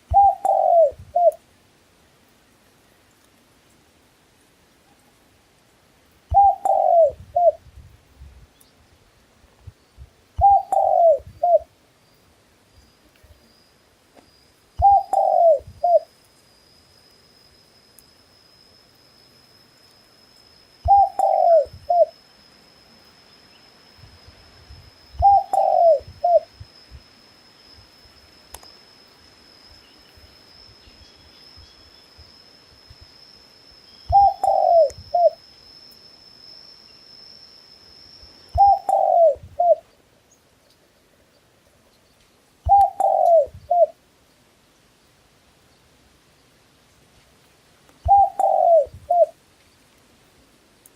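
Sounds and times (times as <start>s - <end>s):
dove cooing: 0.1s - 1.4s, 6.3s - 7.6s, 10.4s - 11.7s, 14.8s - 16.1s, 20.8s - 22.2s, 25.2s - 26.5s, 34.1s - 35.4s, 38.6s - 39.9s, 42.7s - 44.0s, 48.0s - 49.4s
faint high-pitched tone: 9.6s - 40.4s.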